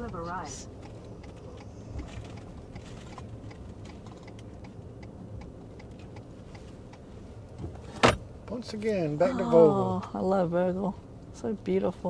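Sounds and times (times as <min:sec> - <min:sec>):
turn signal clicking: 0:00.0 - 0:07.8
engine running hum: 0:00.0 - 0:12.0.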